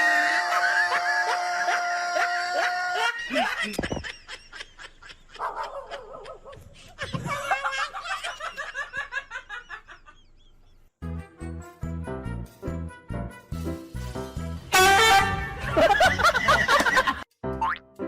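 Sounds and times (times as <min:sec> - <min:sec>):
person laughing: 0:03.1 - 0:10.2.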